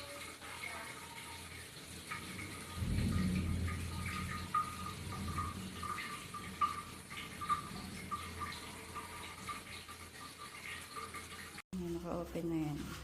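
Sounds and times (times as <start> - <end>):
shower water running: 0.0 - 13.0
low hum: 2.4 - 8.4.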